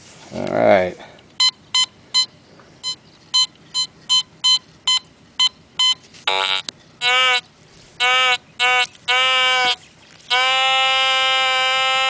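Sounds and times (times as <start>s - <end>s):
metal detector short high beeps: 1.4s - 7.4s
metal detector low long tone: 1.4s - 12.0s.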